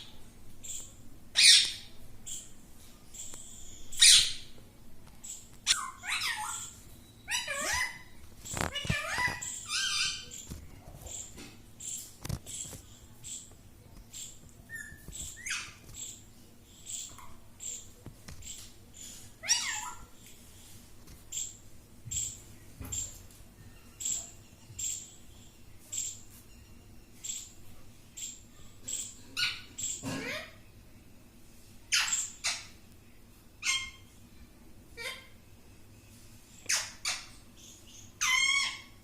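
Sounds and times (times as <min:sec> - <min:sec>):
parakeet squawks: 0:00.6 - 0:02.4, 0:03.9 - 0:04.5, 0:05.6 - 0:10.5, 0:19.4 - 0:20.1, 0:31.9 - 0:32.8, 0:33.6 - 0:34.1, 0:35.0 - 0:35.4, 0:36.7 - 0:37.4, 0:38.2 - 0:39.0
parakeet high chirps: 0:00.6 - 0:02.5, 0:03.2 - 0:04.6, 0:05.3 - 0:10.5, 0:14.2 - 0:16.2, 0:19.4 - 0:20.1, 0:31.9 - 0:32.8, 0:33.6 - 0:34.1, 0:35.0 - 0:35.4, 0:36.6 - 0:39.0.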